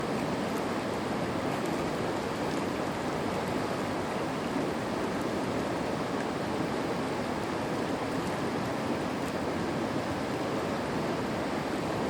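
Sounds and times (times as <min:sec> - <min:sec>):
water flowing in a stream: 0:00.0 - 0:12.0.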